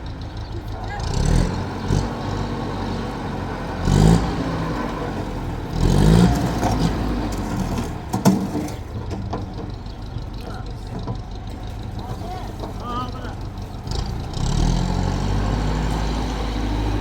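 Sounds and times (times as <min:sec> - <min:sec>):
engine running and revving: 0:00.0 - 0:09.3, 0:13.7 - 0:17.0.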